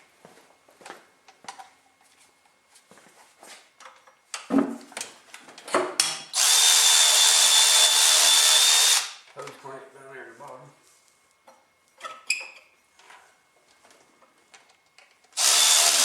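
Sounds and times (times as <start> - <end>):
cordless power tool whining: 6.3 - 9.2, 15.4 - 16.0.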